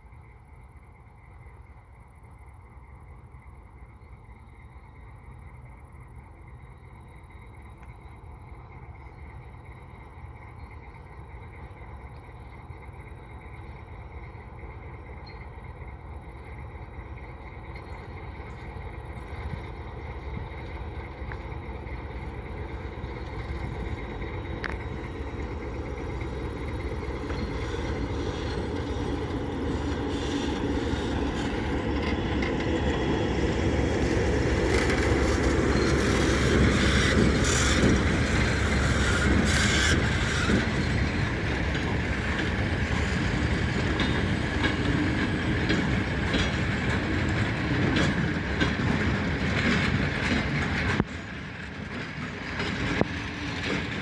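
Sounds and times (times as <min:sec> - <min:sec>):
freight train rolling past: 0:01.2 - 0:54.0
wheels clicking over rail joints: 0:14.8 - 0:54.0.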